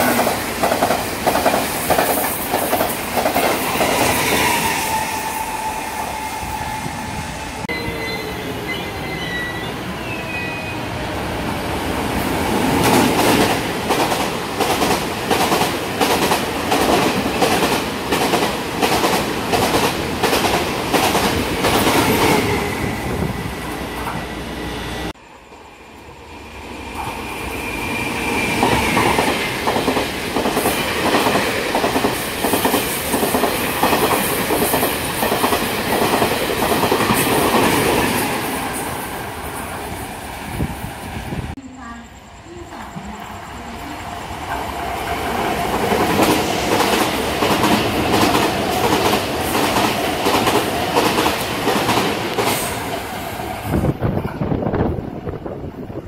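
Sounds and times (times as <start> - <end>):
wheels clickety-clack on rail joints: 0.0 - 4.2, 12.7 - 22.5, 45.4 - 56.0
trains passing at speed: 0.0 - 56.0.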